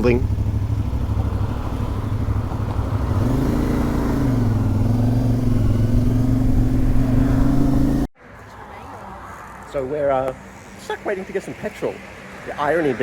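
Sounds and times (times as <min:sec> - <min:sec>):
motorcycle engine running: 0:00.0 - 0:08.1
wind and road noise: 0:00.0 - 0:13.0.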